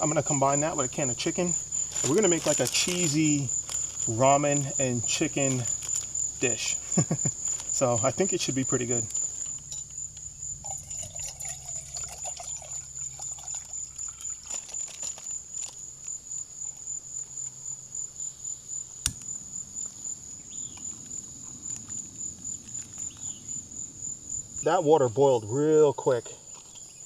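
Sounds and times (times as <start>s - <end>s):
insect trilling: 0.0s - 27.0s
water bubbling in a pot: 9.1s - 14.9s.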